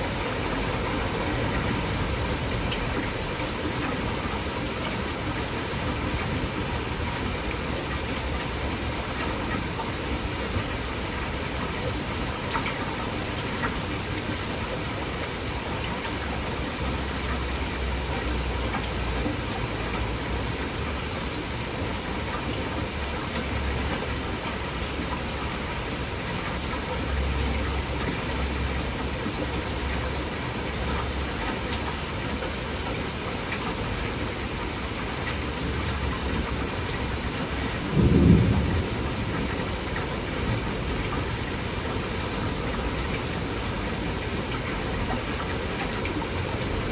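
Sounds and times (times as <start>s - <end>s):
heavy rain falling: 0.0s - 46.9s
low thunder rumbling: 36.3s - 42.6s.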